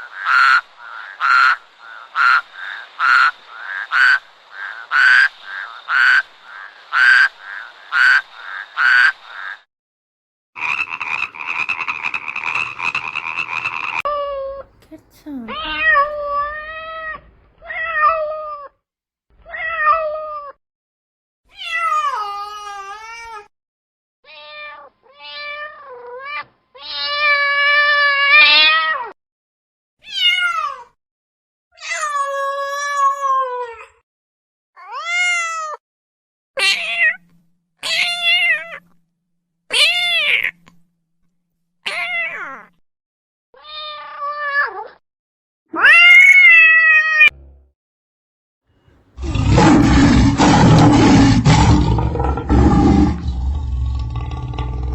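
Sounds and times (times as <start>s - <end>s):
cat meowing: 14.1s - 18.7s, 45.8s - 47.3s.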